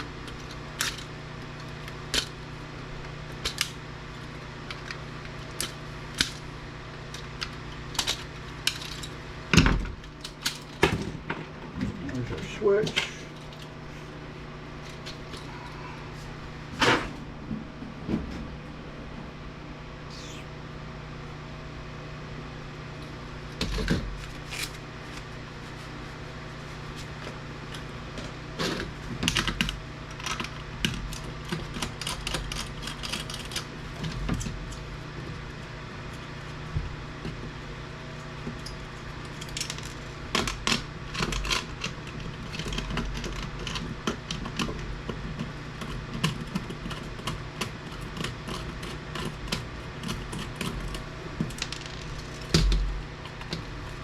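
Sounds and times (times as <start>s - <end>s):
steady low hum: 0.0s - 26.3s, 39.4s - 40.7s, 50.1s - 54.0s
clicks and rattles of small parts: 7.4s - 9.2s, 10.2s - 11.0s, 39.4s - 41.6s, 50.0s - 52.9s.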